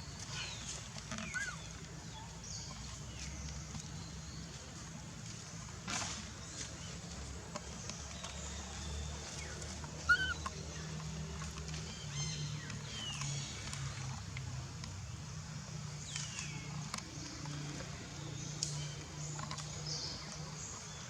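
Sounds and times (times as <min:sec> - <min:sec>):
baby macaque squeaking: 0:10.0 - 0:10.5.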